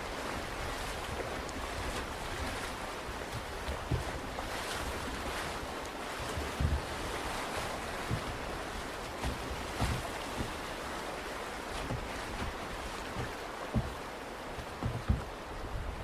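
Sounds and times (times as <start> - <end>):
river water rushing: 0.0 - 16.0
short low thumps: 8.0 - 8.5, 11.8 - 15.9.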